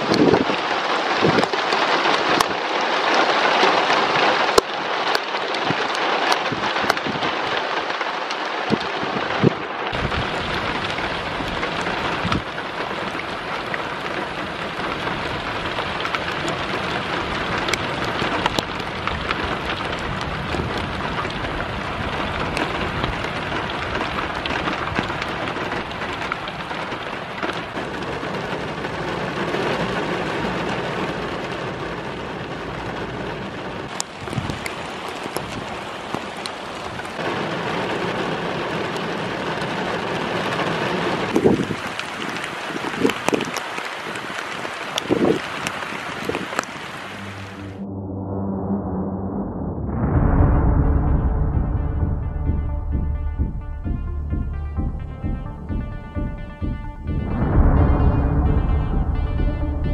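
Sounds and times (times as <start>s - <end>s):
raindrops ticking on surface: 0.0s - 47.8s
heavy rain pouring: 0.0s - 47.9s, 50.2s - 59.9s
low rumble: 47.0s - 59.9s.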